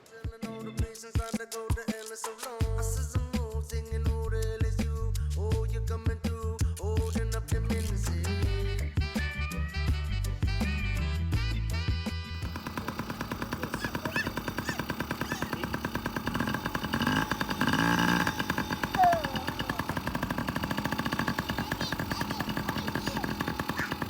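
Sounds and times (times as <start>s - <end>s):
dirt bike engine putter: 12.5s - 24.0s.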